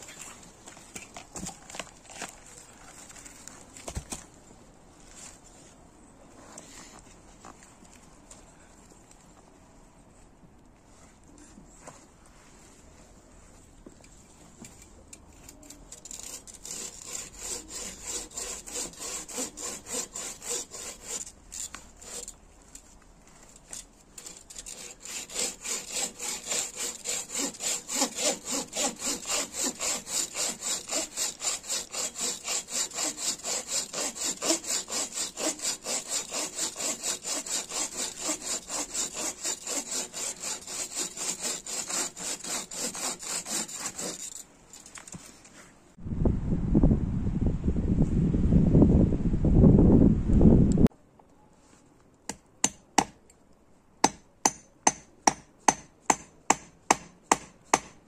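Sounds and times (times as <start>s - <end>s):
hand saw cutting wood: 15.6s - 22.4s, 23.4s - 44.5s, 54.0s - 58.0s.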